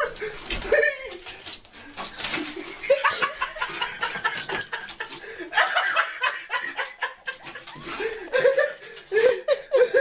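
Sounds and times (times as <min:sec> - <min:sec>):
people laughing and snickering: 0:02.4 - 0:10.0.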